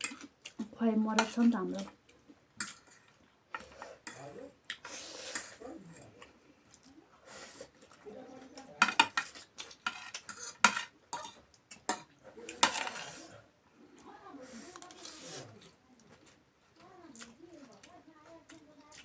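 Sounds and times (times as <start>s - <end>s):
chewing: 0.0s - 10.6s, 11.2s - 19.0s
utensils clinking on dishes: 8.8s - 13.3s.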